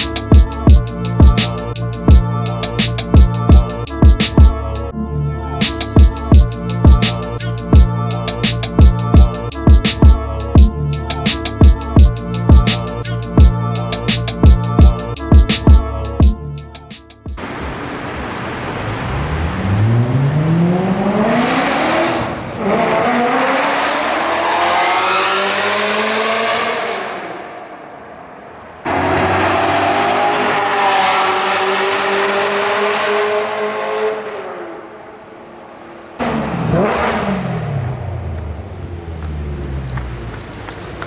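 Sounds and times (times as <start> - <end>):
car engine accelerating hard: 17.4 - 41.0.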